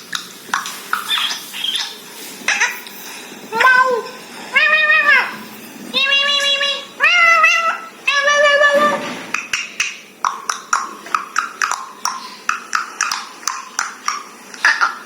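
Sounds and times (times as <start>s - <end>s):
parrot calling: 0.9s - 2.9s, 3.5s - 15.0s
parrot chirping sharply: 1.0s - 2.0s.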